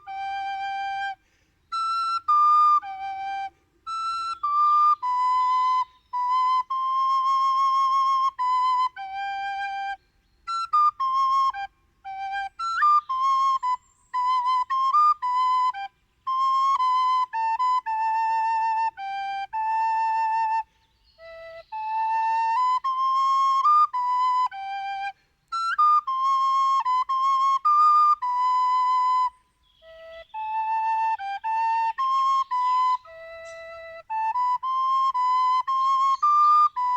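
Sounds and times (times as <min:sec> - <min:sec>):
solo flute melody: 0:00.0 - 0:36.9
flutist breathing: 0:01.1 - 0:01.8, 0:03.5 - 0:03.9, 0:20.6 - 0:21.0, 0:25.1 - 0:25.5.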